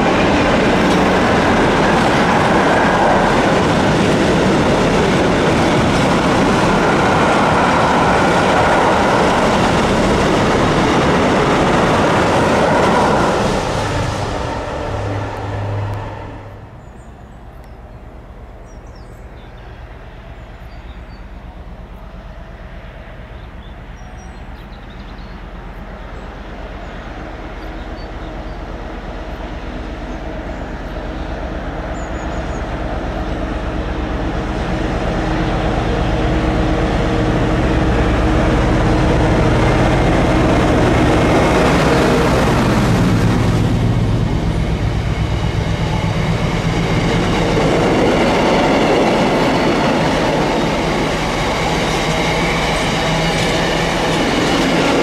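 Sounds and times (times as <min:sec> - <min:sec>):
freight wagons rumbling: 0:00.0 - 0:18.8
diesel locomotive engine: 0:00.0 - 0:55.0.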